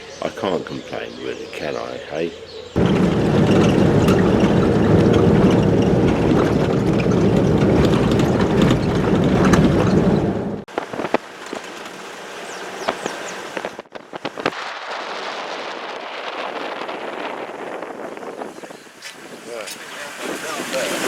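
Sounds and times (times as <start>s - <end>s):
vehicle engine and road noise: 1.7s - 14.6s
sharp knocks: 2.8s - 10.6s
rattling: 2.8s - 10.7s.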